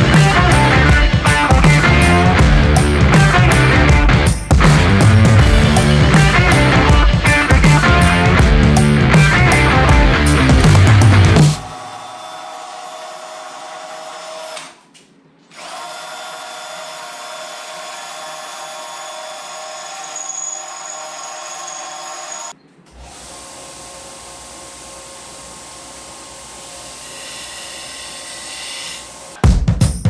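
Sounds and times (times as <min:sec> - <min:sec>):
deeper hum: 0:00.0 - 0:12.3
power drill drilling into metal: 0:11.6 - 0:14.8, 0:15.5 - 0:24.8.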